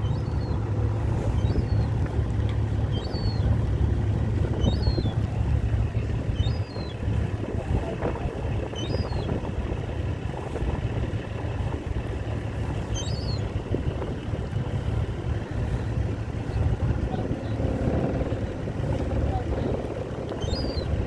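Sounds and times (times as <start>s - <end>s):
low outdoor rumble: 0.0s - 21.0s
wind noise: 3.1s - 21.0s
bird chirping: 20.4s - 20.9s.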